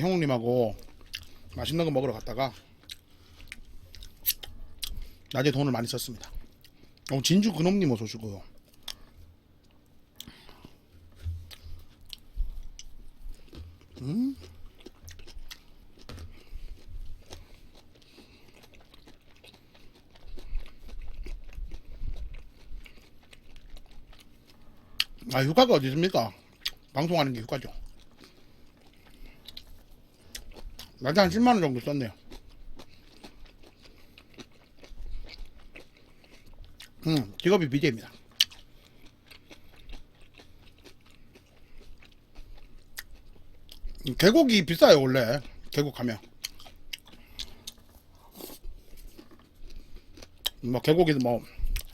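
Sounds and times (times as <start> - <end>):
person chewing food: 0.0 - 51.9.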